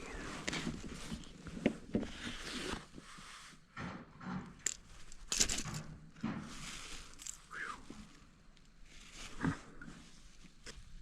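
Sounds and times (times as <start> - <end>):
small clicks and rustles: 4.2 - 7.5.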